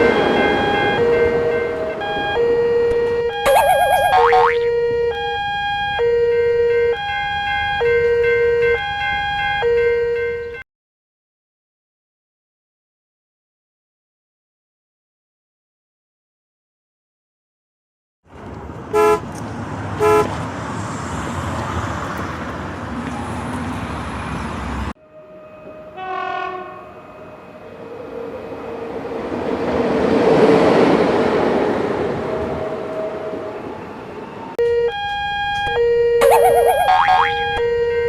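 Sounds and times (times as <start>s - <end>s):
cartoon sound effects or music: 3.4s - 4.6s, 36.2s - 37.6s
train passing: 18.5s - 34.6s
train horn toots: 25.3s - 27.8s.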